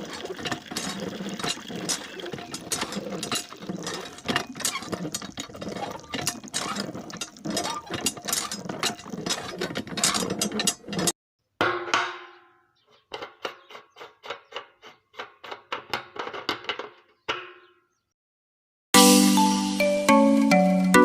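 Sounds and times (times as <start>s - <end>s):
small geared motor clattering: 0.0s - 11.2s
mallet notes music: 19.0s - 21.0s.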